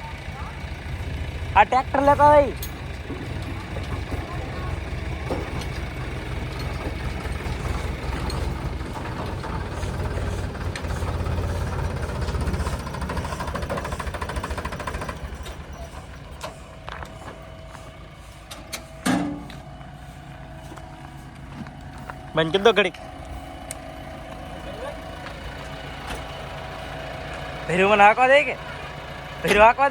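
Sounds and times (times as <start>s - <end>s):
diesel engine under load: 0.0s - 29.9s
sharp metal clank: 19.0s - 19.5s.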